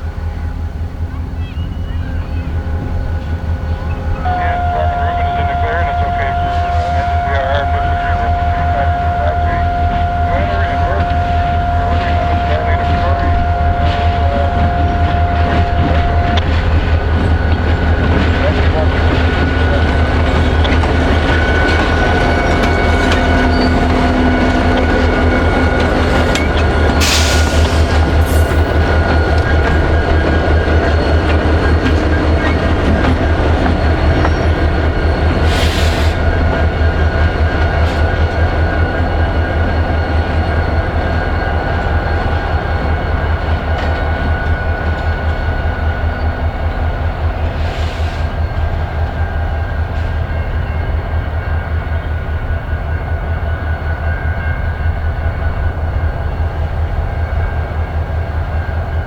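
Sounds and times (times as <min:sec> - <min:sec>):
locomotive engine throb: 0:00.0 - 0:59.0.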